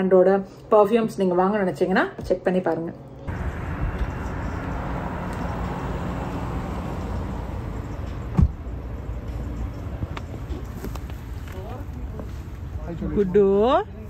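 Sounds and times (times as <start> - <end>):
vehicle engine rumbling: 3.3 - 14.0
sharp thump: 8.3 - 8.6.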